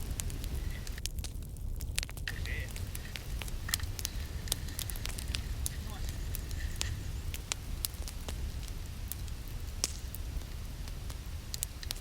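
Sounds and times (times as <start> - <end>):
sharp crackles and pops: 0.0 - 12.0
steady low rumble: 0.0 - 12.0.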